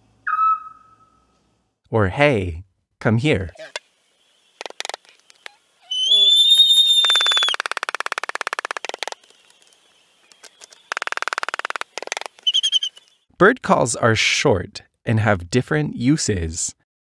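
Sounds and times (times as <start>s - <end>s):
songbird singing: 0.2s - 1.3s, 4.0s - 13.3s.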